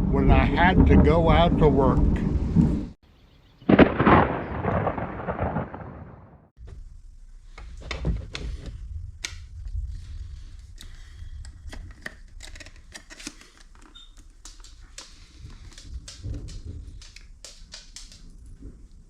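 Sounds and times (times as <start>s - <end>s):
low thunder rumbling: 0.0s - 3.0s, 3.6s - 7.1s, 8.4s - 11.7s
scattered sharp ticks: 14.4s - 18.6s.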